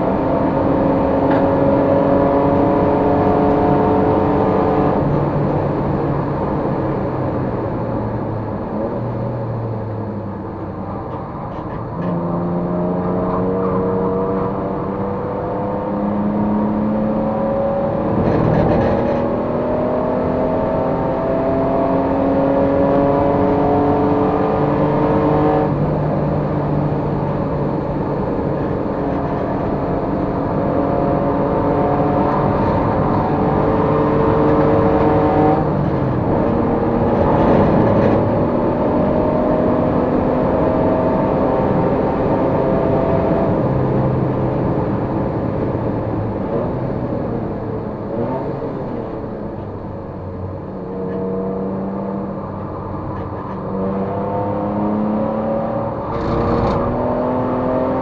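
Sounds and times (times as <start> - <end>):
race car engine shifting gears: 17.9 - 21.0, 27.2 - 43.8, 52.9 - 58.0.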